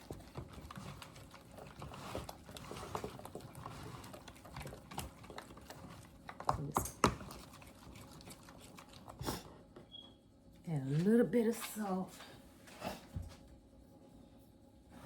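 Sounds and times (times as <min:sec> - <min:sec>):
spoon scraping mixing bowl: 0:00.0 - 0:09.4.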